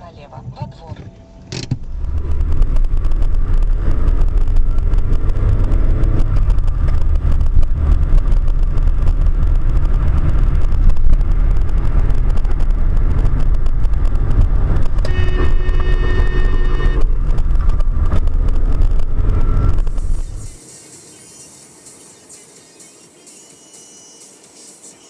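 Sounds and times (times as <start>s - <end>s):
car driving rumble: 0.7s - 20.6s.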